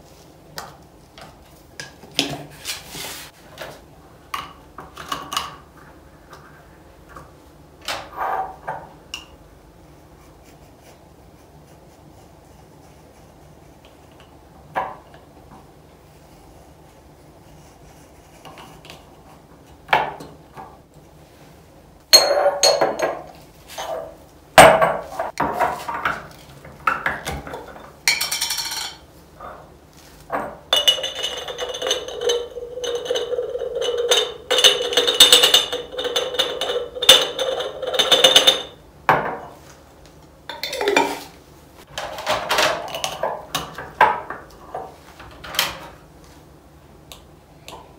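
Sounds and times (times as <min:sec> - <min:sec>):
glass jars clinking: 0:22.2 - 0:23.3, 0:30.5 - 0:38.8, 0:40.5 - 0:41.2.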